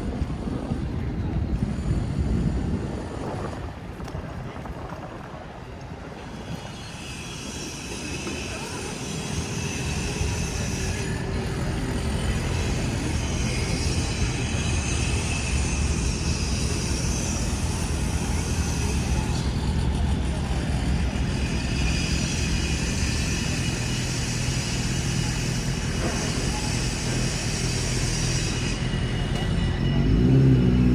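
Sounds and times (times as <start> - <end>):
low engine rumble: 8.0 - 30.9.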